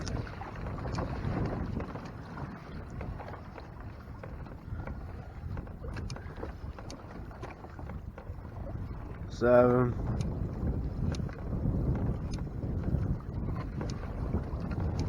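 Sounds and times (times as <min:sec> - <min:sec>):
light ticks: 0:00.0 - 0:00.2, 0:05.9 - 0:06.2, 0:06.8 - 0:07.0, 0:10.1 - 0:10.4, 0:12.2 - 0:12.5, 0:13.8 - 0:14.0
water lapping against hull: 0:00.0 - 0:15.0
wind on microphone: 0:00.0 - 0:15.0.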